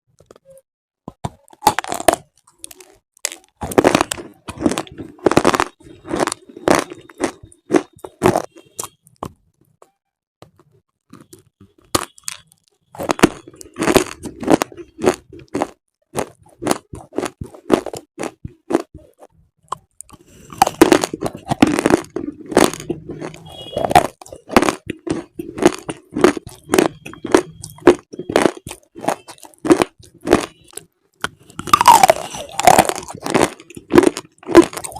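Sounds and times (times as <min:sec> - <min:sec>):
brittle crunching: 0:01.2 - 0:09.4, 0:10.4 - 0:18.9, 0:19.7 - 0:34.9.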